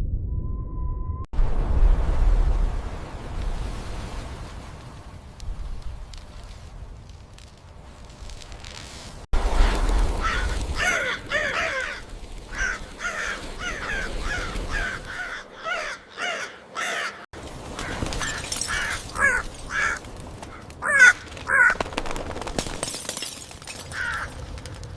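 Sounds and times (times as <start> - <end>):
low rumble: 0.0 - 3.6
birds calling harshly: 9.6 - 17.2.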